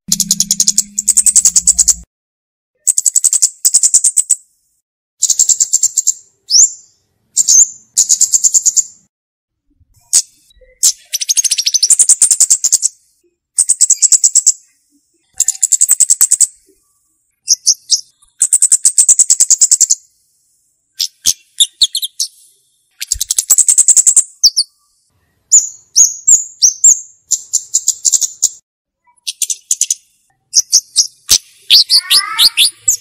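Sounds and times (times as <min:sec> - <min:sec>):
bird notes sliding down: 0:00.1 - 0:02.1
bird rapid high trills: 0:00.1 - 0:02.1, 0:31.3 - 0:33.0.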